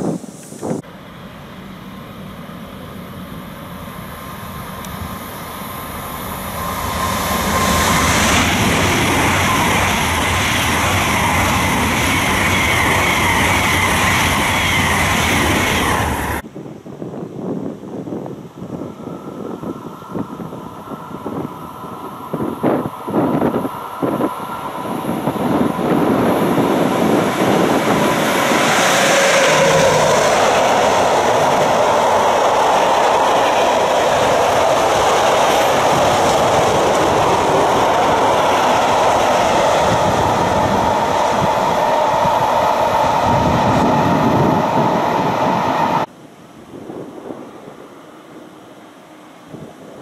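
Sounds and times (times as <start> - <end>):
freight train wheel rumble and clatter: 5.2 - 16.4, 22.3 - 46.1
thin steady whine: 18.2 - 46.5.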